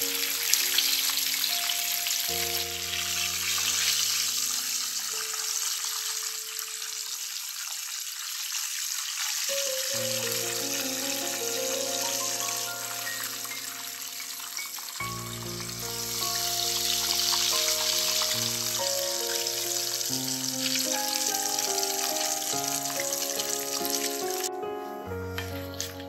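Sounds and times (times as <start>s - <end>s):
background music: 0.0s - 5.7s, 9.5s - 26.0s
chicken frying in oil: 0.0s - 24.5s.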